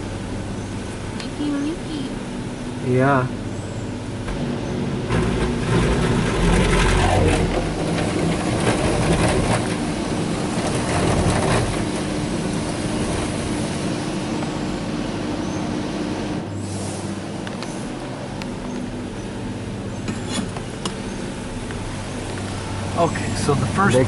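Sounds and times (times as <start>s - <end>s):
water spraying against car: 4.5s - 15.3s.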